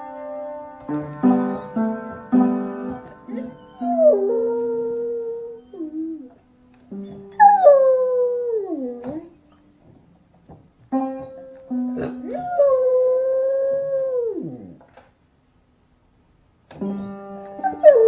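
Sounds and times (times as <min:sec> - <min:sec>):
held musical notes: 0:00.0 - 0:14.8
dog howling: 0:02.9 - 0:06.4, 0:07.1 - 0:09.4.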